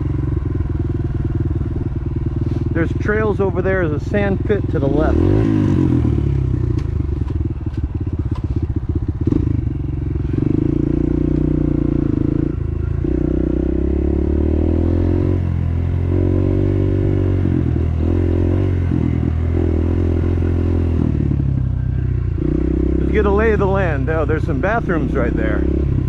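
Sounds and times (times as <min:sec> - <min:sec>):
dirt bike engine running: 0:00.0 - 0:26.0
sharp clicks and rattles: 0:06.7 - 0:08.6.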